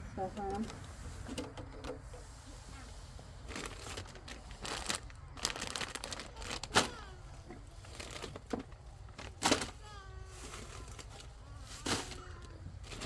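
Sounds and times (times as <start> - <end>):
plastic packaging crinkling: 3.4 - 13.0.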